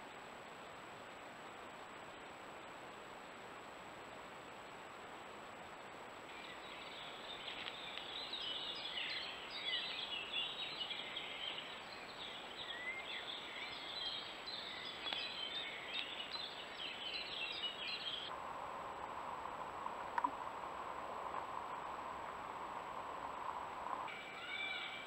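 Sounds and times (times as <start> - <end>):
steady background hiss: 0.0 - 25.0
birds chirping: 6.3 - 18.3, 23.8 - 25.0.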